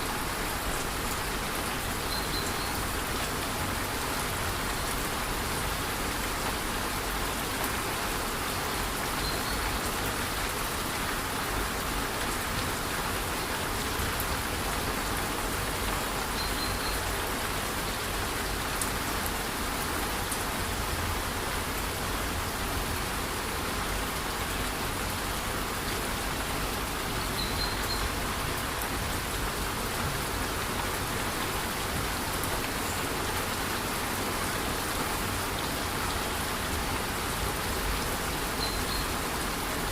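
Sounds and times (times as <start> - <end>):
faint high chirp: 27.4 - 28.1, 38.6 - 39.1.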